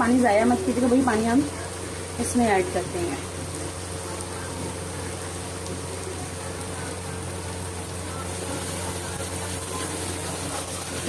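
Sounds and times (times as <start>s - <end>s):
constant low hum: 0.0s - 11.0s
food sizzling in a pot: 0.0s - 11.0s.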